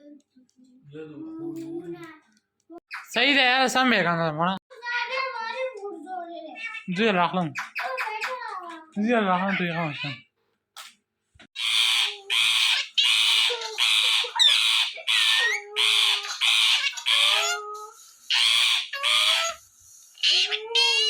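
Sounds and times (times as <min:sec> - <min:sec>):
parakeet screeching: 0:02.9 - 0:03.3, 0:06.5 - 0:08.5, 0:09.2 - 0:10.3, 0:11.6 - 0:21.0.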